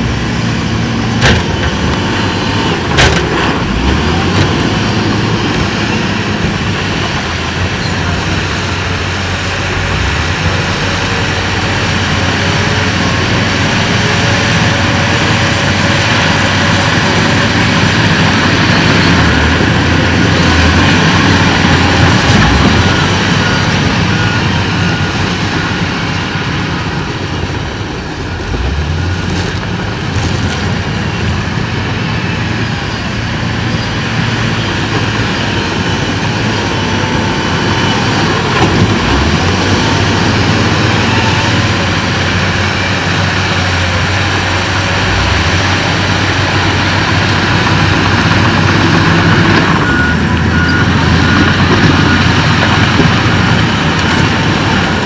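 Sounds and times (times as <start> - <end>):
heavy diesel machinery droning: 0.0 - 55.0.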